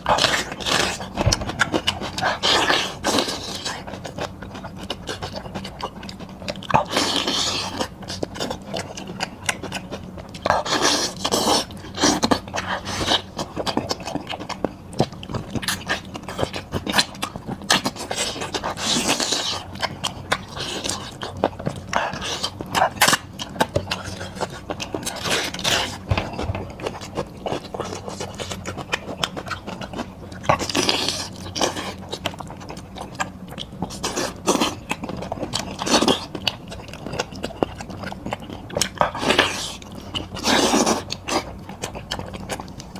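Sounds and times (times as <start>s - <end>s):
chewing and wet mouth noises: 0.0s - 42.9s.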